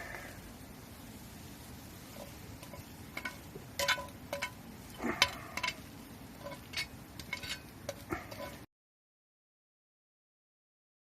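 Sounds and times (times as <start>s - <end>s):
light clicks and clinks: 2.2s - 4.6s, 5.2s - 5.8s, 6.4s - 8.6s.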